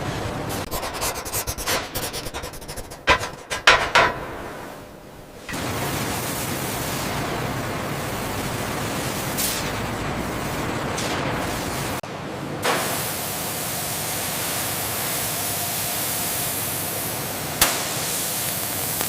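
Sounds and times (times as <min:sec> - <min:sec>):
metalworking clicks and knocks: 0:03.0 - 0:04.8.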